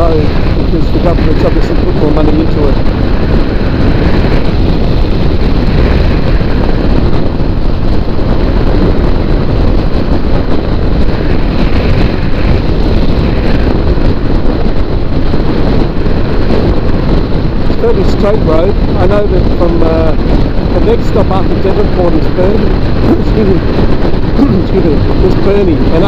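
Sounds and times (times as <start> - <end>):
wind rush on microphone: 0.0 - 26.0.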